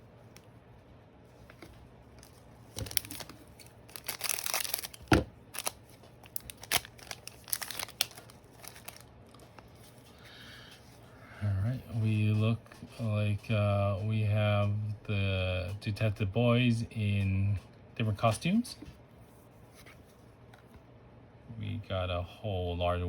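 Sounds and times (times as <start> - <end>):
wrapper tearing and crinkling: 2.2 - 9.1.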